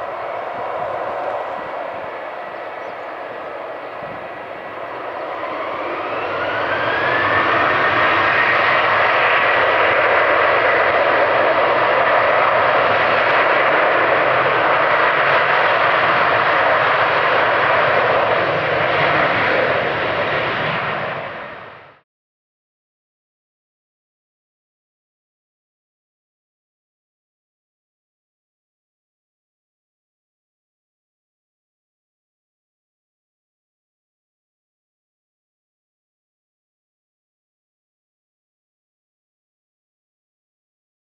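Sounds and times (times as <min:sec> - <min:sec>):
jet engines rushing and whining: 0:00.0 - 0:21.9.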